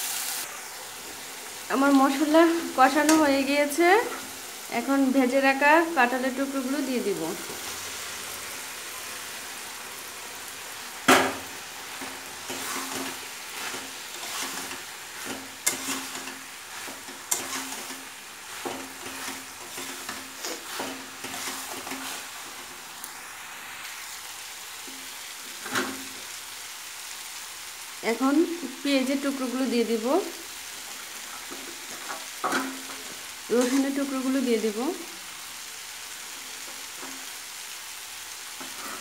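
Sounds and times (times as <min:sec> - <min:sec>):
food sizzling in oil: 0:00.0 - 0:39.0
metal clang on pan: 0:11.1 - 0:11.5
spatula scraping a metal pan: 0:11.9 - 0:22.6, 0:38.6 - 0:39.0.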